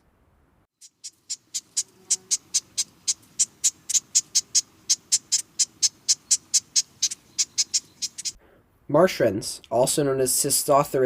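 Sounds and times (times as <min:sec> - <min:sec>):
wren calling: 0:00.8 - 0:08.4.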